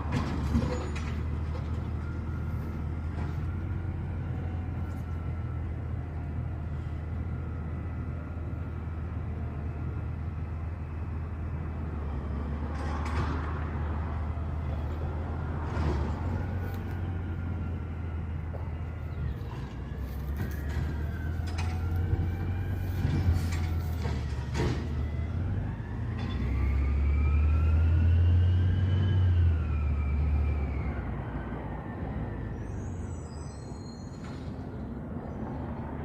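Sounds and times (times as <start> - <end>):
garbage truck engine running: 13.7 - 26.7.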